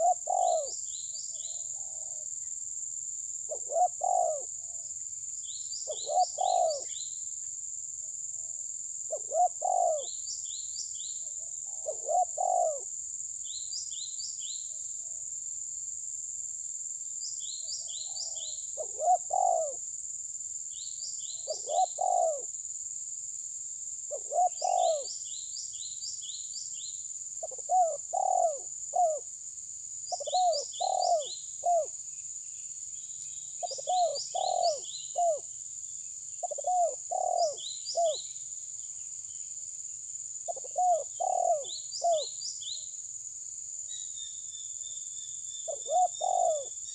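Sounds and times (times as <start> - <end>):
bird cooing: 0.0 - 2.2, 3.5 - 4.9, 5.8 - 7.0, 8.4 - 10.2, 11.7 - 12.9, 17.8 - 19.8, 21.3 - 22.5, 24.1 - 25.2, 27.4 - 29.3, 30.1 - 32.0, 33.6 - 35.5, 36.4 - 38.3, 40.5 - 42.4, 45.6 - 46.8.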